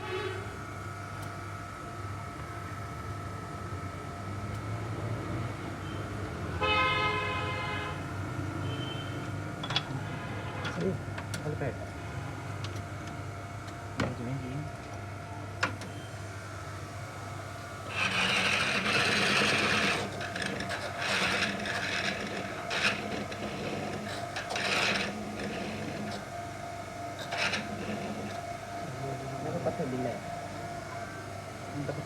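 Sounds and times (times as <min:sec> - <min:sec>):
rasping strokes: 0:17.9 - 0:26.2, 0:27.2 - 0:28.4.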